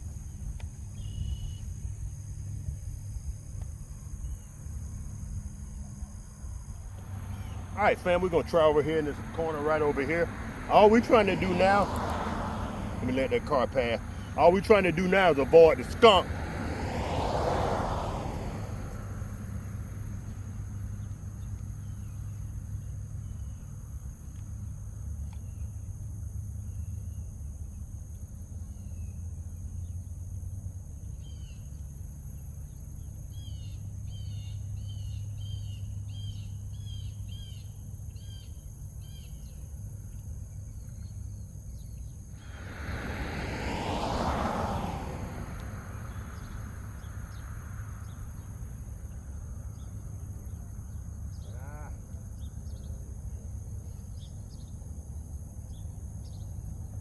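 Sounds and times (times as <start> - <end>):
car passing: 1.8 - 23.3, 39.8 - 57.0.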